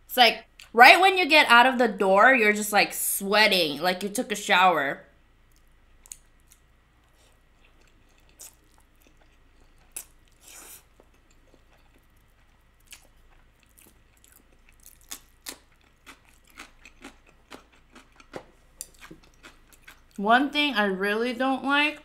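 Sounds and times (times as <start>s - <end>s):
person chewing noodles: 5.5s - 20.2s
crisp crunches of biting: 7.7s - 20.1s.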